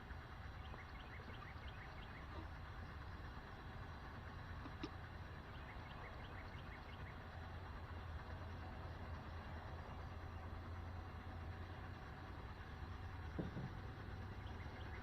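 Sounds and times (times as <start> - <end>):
bird chirping: 0.6 - 2.4, 14.4 - 15.0.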